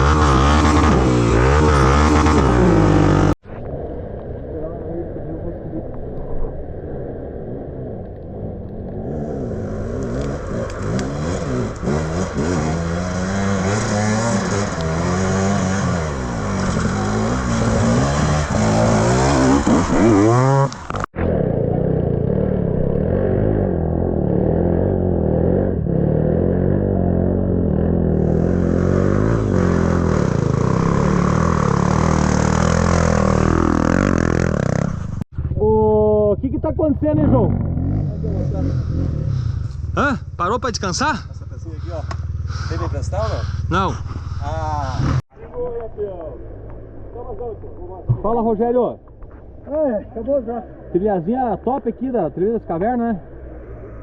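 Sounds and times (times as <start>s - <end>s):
motorcycle engine revving: 0.0s - 3.4s, 7.0s - 45.3s.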